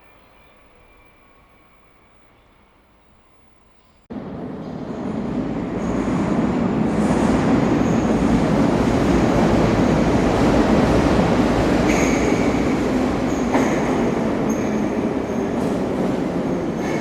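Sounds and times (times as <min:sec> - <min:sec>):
faint high squeal: 0:00.0 - 0:04.0
train rumbling on rails: 0:00.0 - 0:17.0.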